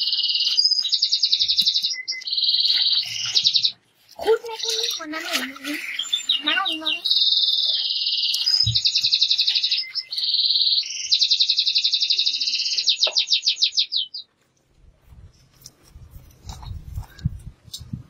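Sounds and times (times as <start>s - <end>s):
small bird singing trills: 0.0s - 14.3s.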